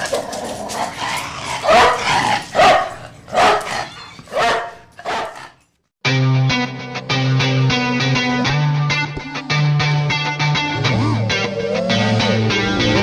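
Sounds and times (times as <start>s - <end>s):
dog barking: 1.6s - 5.6s
guitar music: 6.0s - 13.0s.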